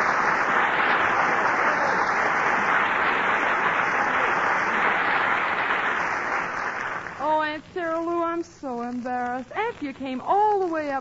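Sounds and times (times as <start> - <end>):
studio audience applauding: 0.0 - 7.4.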